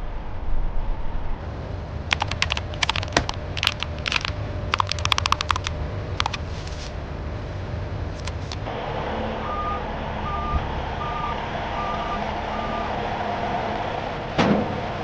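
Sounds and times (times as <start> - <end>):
factory machinery humming: 0.0 - 15.0
sharp clicks and clatter: 2.1 - 6.5, 8.2 - 8.6.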